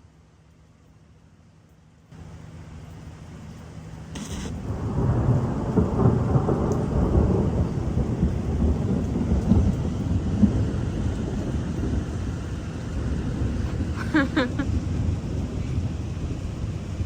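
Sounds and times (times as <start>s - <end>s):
rain falling: 0.0s - 17.0s
sharp click: 4.2s - 4.6s
thunder rolling: 4.2s - 17.0s.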